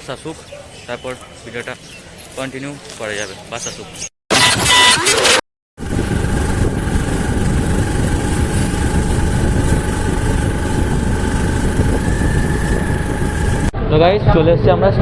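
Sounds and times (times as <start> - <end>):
auto-rickshaw engine running: 5.8 - 13.7.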